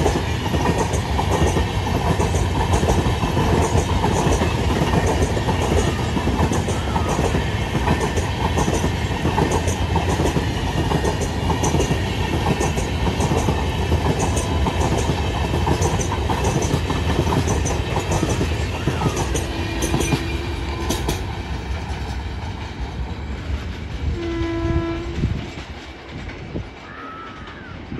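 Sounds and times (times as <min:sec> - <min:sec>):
train coaches rumbling: 0:00.0 - 0:27.9
wheels clickety-clack over rail joints: 0:00.0 - 0:27.9
train horn blast: 0:18.9 - 0:21.2, 0:24.1 - 0:25.5.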